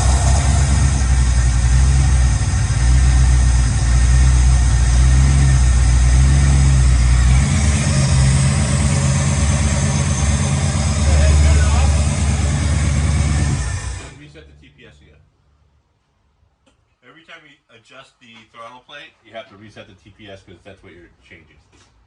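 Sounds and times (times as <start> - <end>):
car engine idling: 0.0 - 15.2.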